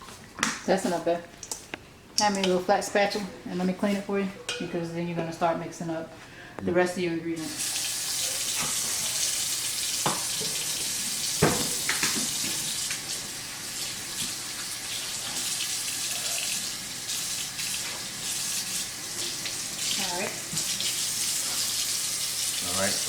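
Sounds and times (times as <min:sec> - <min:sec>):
faucet running into sink: 0:07.4 - 0:23.0
utensils knocking against sink: 0:11.4 - 0:12.6.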